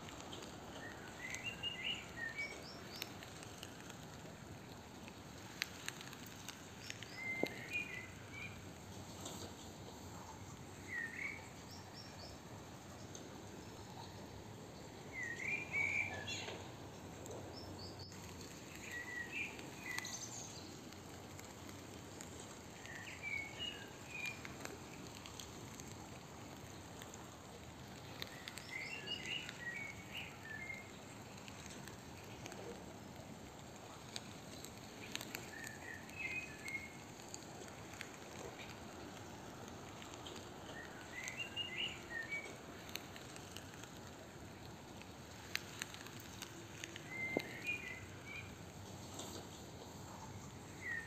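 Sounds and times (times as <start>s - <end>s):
outdoor background hiss: 0.0s - 51.0s
songbird calling: 0.4s - 3.2s, 6.8s - 8.6s, 10.5s - 12.4s, 15.1s - 16.7s, 17.5s - 20.8s, 22.8s - 24.5s, 28.1s - 31.0s, 35.0s - 37.0s, 40.6s - 42.6s, 45.8s - 48.6s, 50.8s - 51.0s.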